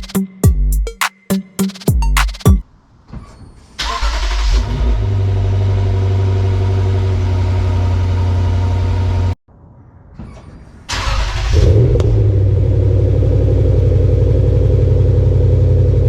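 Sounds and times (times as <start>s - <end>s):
car engine starting and idling: 3.8s - 9.4s, 10.9s - 16.0s.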